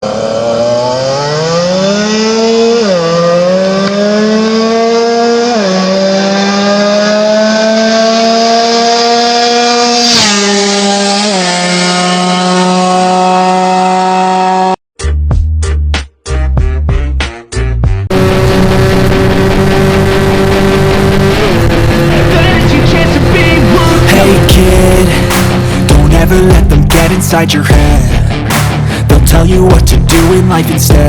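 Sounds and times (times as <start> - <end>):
two-stroke engine at high revs: 0.0 - 14.8, 18.1 - 28.2.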